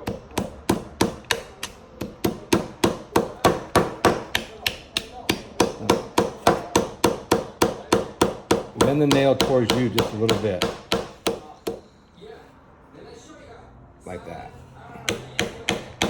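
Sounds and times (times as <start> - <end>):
hammer tapping nail into wood: 0.0 - 11.9, 15.0 - 16.0.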